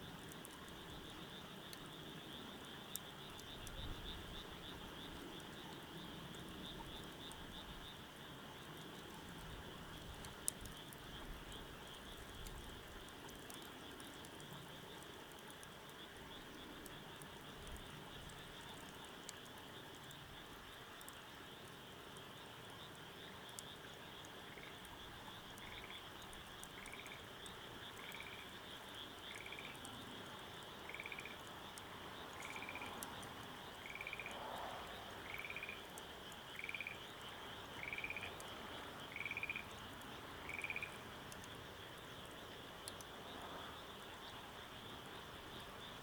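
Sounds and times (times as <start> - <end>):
faint scattered ticks: 0.0 - 46.0
high-pitched insect chorus: 23.8 - 46.0
frog trilled croaking: 30.9 - 31.4, 35.2 - 35.8, 36.5 - 37.0, 37.8 - 38.4, 39.1 - 39.7, 40.4 - 41.0.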